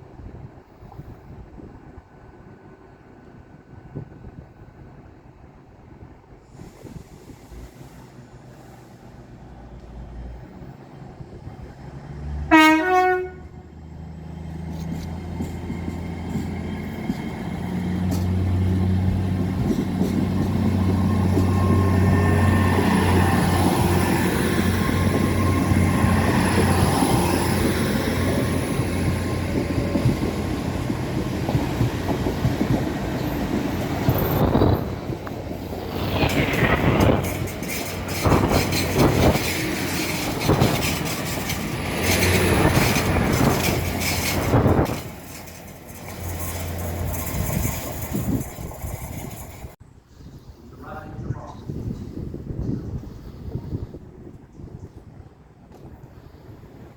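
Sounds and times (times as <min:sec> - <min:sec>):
train engine drone: 0:00.1 - 0:54.4
train horn blast: 0:12.4 - 0:13.8
train wheels clacking: 0:14.4 - 0:49.8
wheel squeal: 0:36.4 - 0:49.8.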